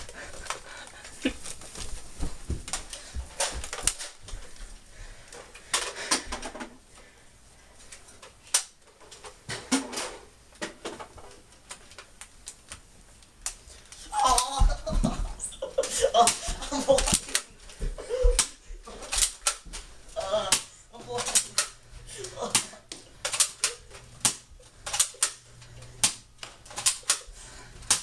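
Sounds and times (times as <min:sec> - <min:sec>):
irregular clicks and knocks: 0:22.5 - 0:28.0.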